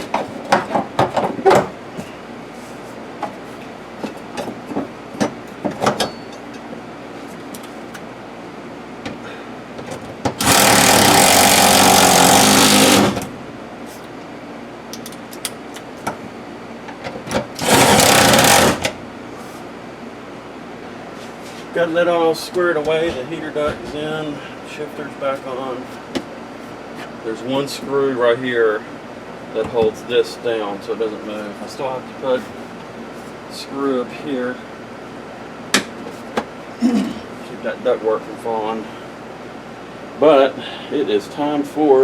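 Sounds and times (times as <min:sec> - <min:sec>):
power driver running: 0:10.2 - 0:13.7, 0:17.4 - 0:19.1.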